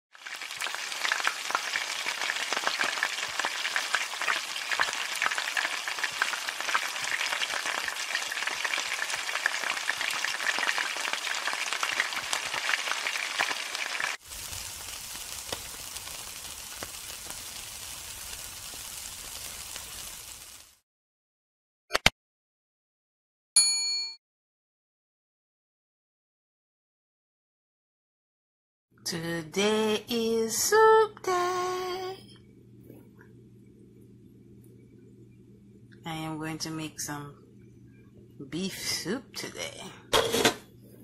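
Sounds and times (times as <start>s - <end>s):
food frying in hot oil: 0.1s - 20.8s
meat sizzling on a grill: 0.1s - 20.8s.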